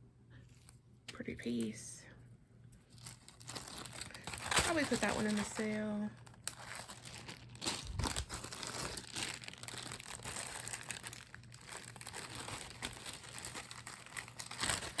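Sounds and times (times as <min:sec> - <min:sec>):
plastic bags crinkling: 0:02.9 - 0:15.0.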